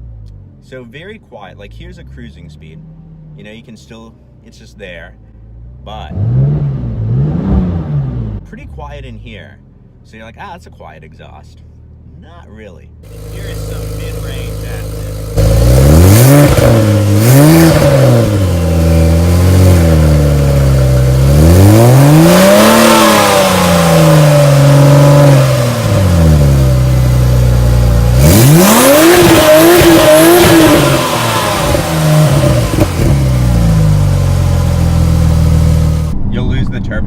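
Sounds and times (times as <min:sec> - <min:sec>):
car engine revving from cabin: 0:06.1 - 0:08.5, 0:13.1 - 0:36.2.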